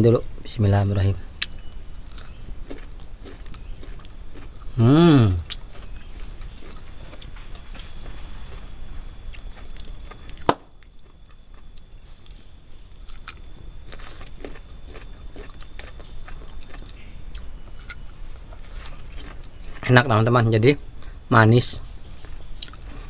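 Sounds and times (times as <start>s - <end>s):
faint forest background: 0.0s - 23.0s
insect high-pitched call: 0.0s - 23.0s.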